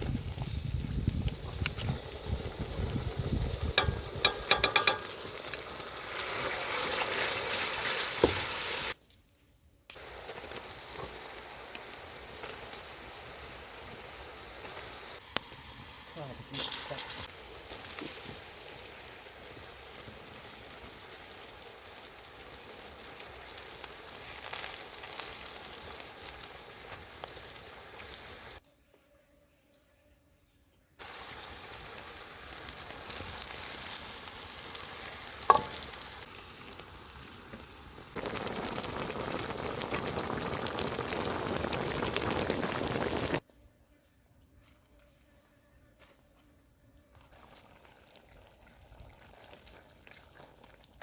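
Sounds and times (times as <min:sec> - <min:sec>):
food sizzling in a pan: 0:00.2 - 0:09.0, 0:10.0 - 0:28.6, 0:31.0 - 0:43.4.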